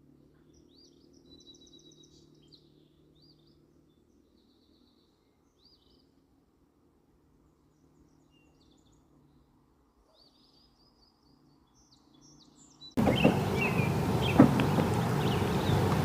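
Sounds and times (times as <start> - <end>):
birds chirping: 10.2 - 16.0
steady outdoor noise: 11.0 - 16.0
sharp knocks: 13.0 - 16.0.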